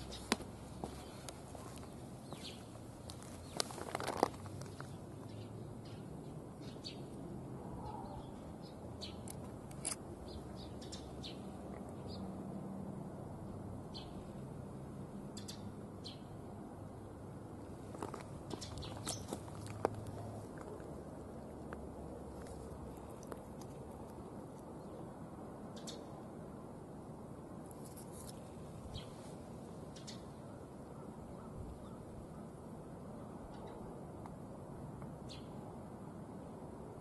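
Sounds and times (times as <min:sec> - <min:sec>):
small birds chirping: 0:00.0 - 0:07.2, 0:07.8 - 0:12.3, 0:15.4 - 0:16.4, 0:18.0 - 0:26.2, 0:29.9 - 0:32.1, 0:35.3 - 0:35.7
faint outdoor hum: 0:00.0 - 0:37.0.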